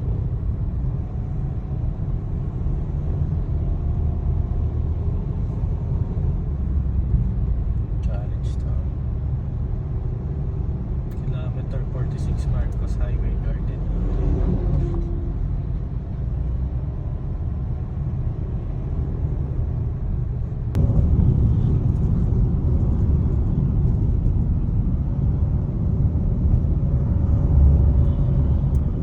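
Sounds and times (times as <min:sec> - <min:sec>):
vehicle rumble: 0:00.0 - 0:29.0.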